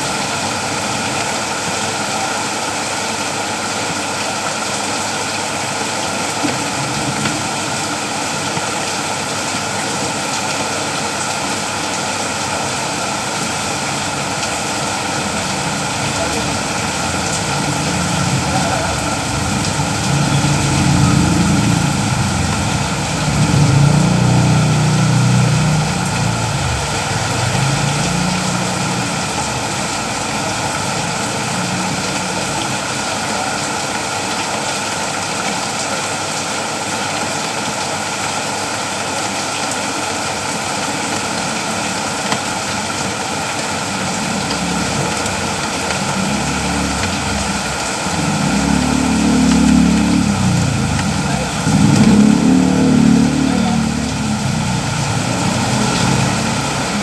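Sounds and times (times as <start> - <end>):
steady rain falling: 0.0 - 57.0
low rumble: 14.3 - 31.7, 44.0 - 57.0.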